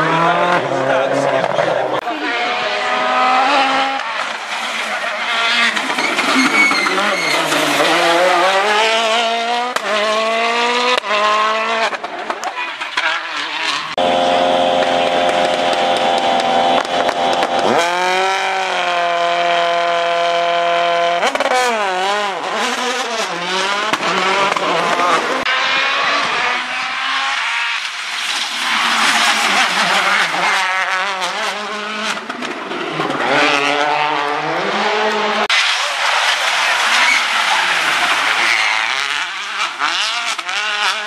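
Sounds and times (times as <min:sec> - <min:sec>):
rally car engine revving: 0:00.0 - 0:41.0
tyre squeal: 0:04.6 - 0:08.4, 0:35.5 - 0:39.7.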